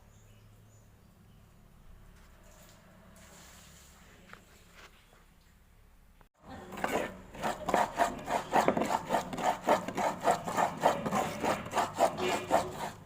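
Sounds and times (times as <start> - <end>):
stone pestle grinding in mortar: 6.5 - 13.0.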